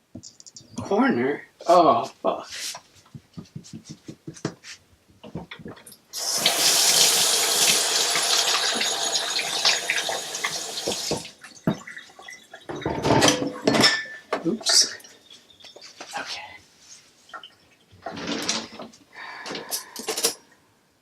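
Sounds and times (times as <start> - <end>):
tap water running into sink: 6.2 - 13.0.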